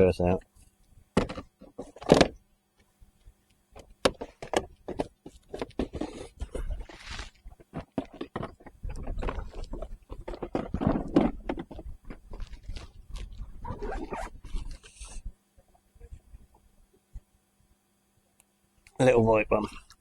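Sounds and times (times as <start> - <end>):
tackle boxes and lures rattling: 1.2 - 2.4, 3.8 - 15.2.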